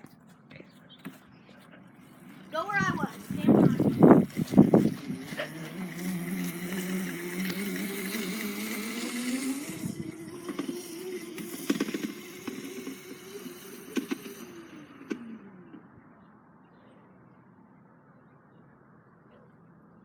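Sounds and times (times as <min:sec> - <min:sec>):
dirt bike motor running: 0:00.9 - 0:16.3.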